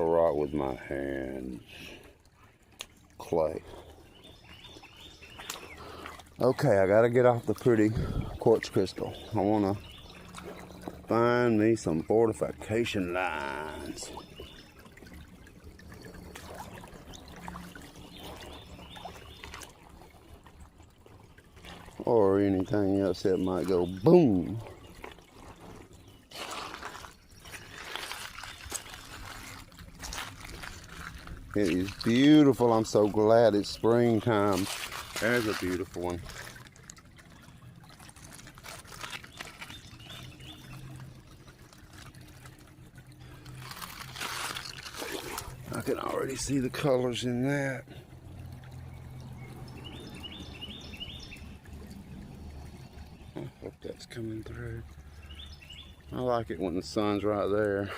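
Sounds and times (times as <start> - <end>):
creek water trickling: 0.0 - 57.9
small splashes and knocks: 0.0 - 57.9.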